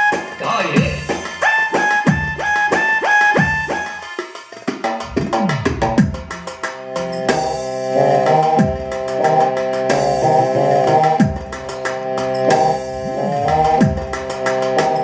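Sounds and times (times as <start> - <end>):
drum rhythm: 0.0 - 15.0
keyboard sustained chords: 6.8 - 15.0.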